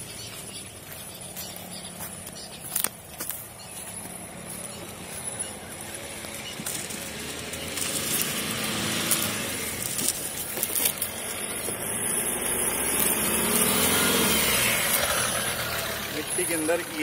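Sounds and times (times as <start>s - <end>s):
car engine revving under load: 3.5s - 17.0s.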